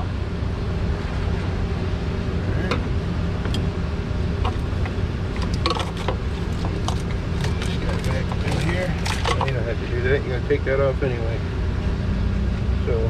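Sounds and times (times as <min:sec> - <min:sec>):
low mechanical rumble and hum: 0:00.0 - 0:13.0
hand tools clicking and tapping: 0:04.4 - 0:09.6.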